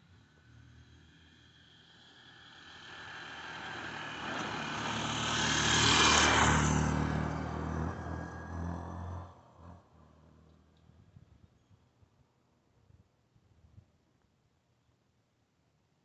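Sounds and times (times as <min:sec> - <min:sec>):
vehicle driving past: 0:00.2 - 0:10.5.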